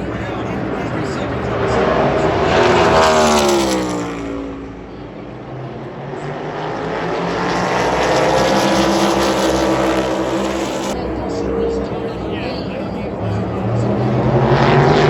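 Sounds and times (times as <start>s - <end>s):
race car engines at full throttle: 0.0s - 15.0s.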